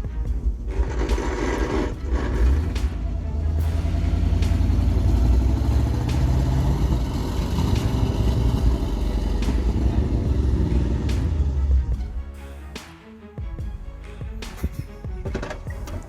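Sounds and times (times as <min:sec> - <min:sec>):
large vehicle engine rumbling: 0:00.0 - 0:12.2.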